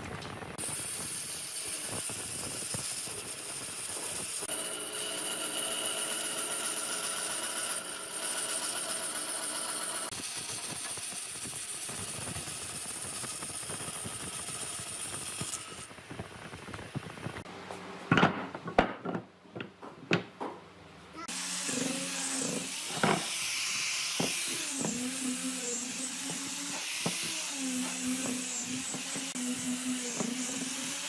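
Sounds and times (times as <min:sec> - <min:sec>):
electric power tool whining: 0:21.3 - 0:31.0.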